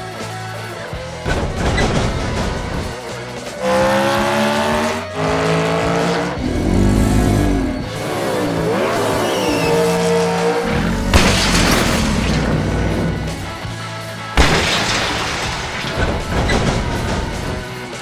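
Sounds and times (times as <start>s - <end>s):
background music: 0.2s - 16.2s
engine revving: 2.4s - 13.9s.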